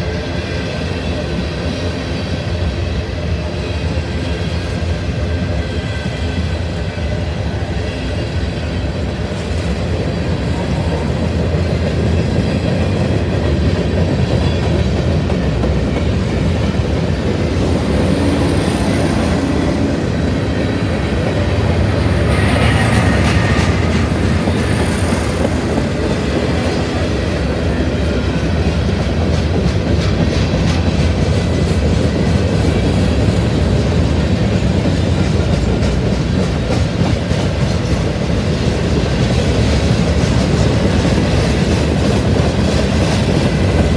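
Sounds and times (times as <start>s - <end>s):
train wheels rumbling on rail: 0.0s - 43.9s.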